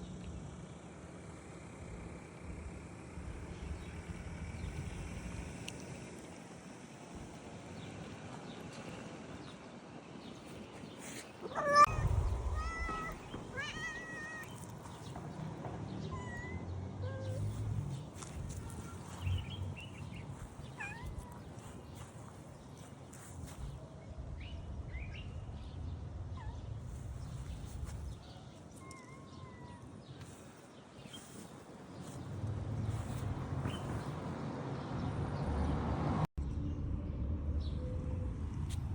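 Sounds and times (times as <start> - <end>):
cat meowing: 11.5 - 14.6.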